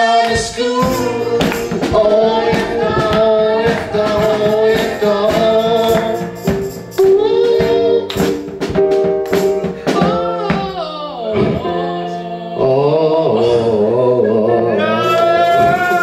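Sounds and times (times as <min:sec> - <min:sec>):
voices singing: 0:00.0 - 0:08.4, 0:09.9 - 0:16.0
percussion beat: 0:00.0 - 0:11.8, 0:15.1 - 0:16.0
band accompaniment: 0:00.0 - 0:12.2, 0:14.8 - 0:16.0.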